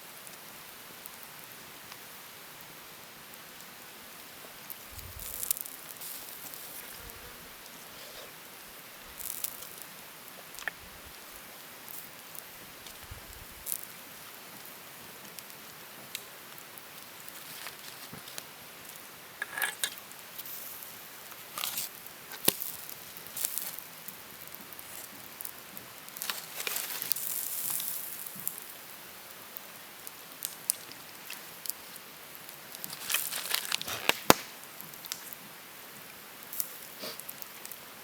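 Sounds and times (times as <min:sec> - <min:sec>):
background hiss: 0:00.0 - 0:38.0
rustling: 0:04.9 - 0:08.4, 0:17.2 - 0:18.5, 0:26.2 - 0:28.5, 0:32.7 - 0:35.4.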